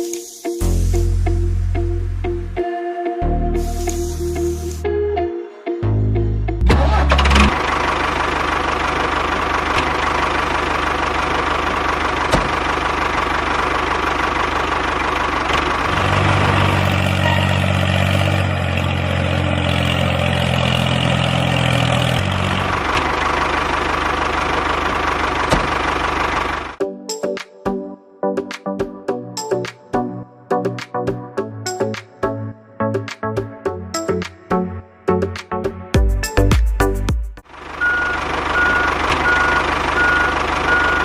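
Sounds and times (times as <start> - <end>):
small engine running: 6.8 - 26.8, 37.5 - 41.0.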